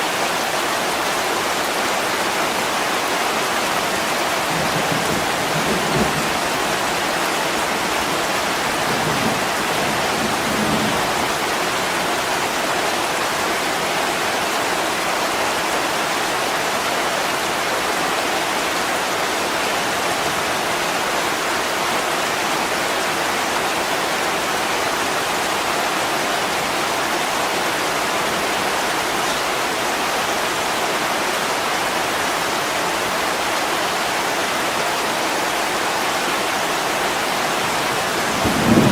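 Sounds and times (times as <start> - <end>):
heavy rain on window: 0.1 - 31.2, 34.9 - 38.9.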